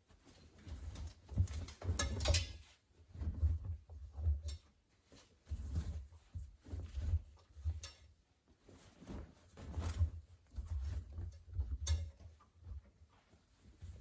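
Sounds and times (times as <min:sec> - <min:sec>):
fabric rustling: 0:04.9 - 0:11.6.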